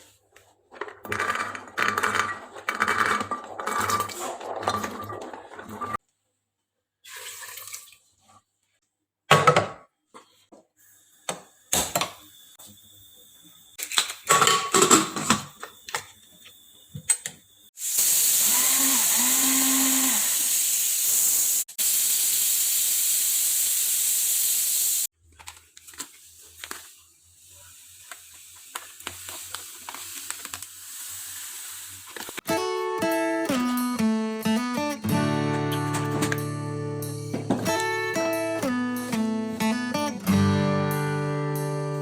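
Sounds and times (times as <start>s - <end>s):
steam hissing loudly: 17.8s - 25.1s.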